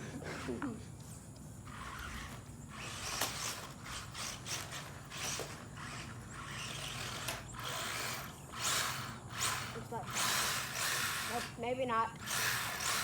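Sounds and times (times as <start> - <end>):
rc truck motor whirring: 1.6 - 13.0.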